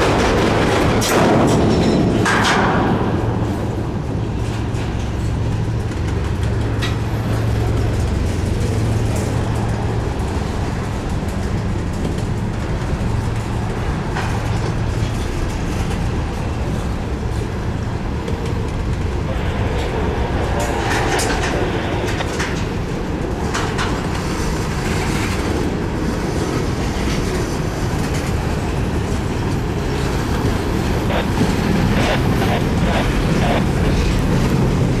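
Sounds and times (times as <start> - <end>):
train cars clanking: 0.0 - 8.8
freight train rolling on rails: 0.0 - 35.0.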